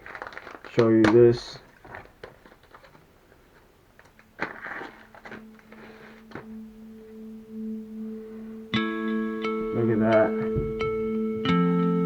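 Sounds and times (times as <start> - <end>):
packaging rustling and clicks: 0.0 - 6.5
low held musical note: 5.0 - 12.0.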